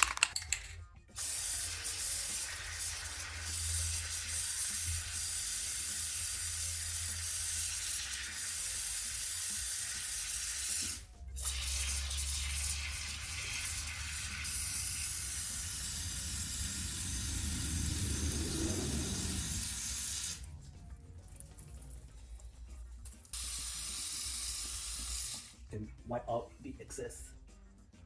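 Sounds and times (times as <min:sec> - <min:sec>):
aerosol spray hissing: 0:01.2 - 0:20.5, 0:23.4 - 0:25.6.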